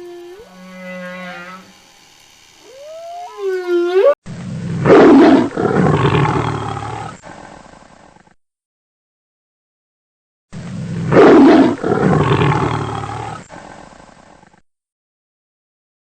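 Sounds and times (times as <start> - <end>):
big cat roar: 0.0 - 1.7, 4.8 - 7.5, 11.1 - 13.8
whale song: 0.0 - 4.2.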